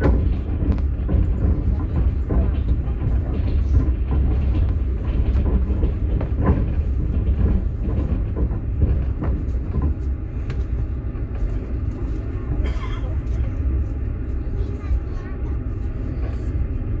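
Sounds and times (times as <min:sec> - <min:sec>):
wheels knocking over rails: 0:00.0 - 0:10.6
train rumbling: 0:00.0 - 0:17.0.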